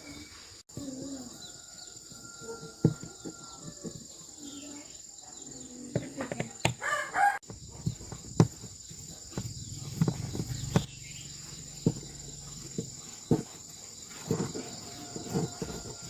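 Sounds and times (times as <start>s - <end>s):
rooster crowing: 1.2s - 4.0s, 6.8s - 7.4s, 14.6s - 16.0s.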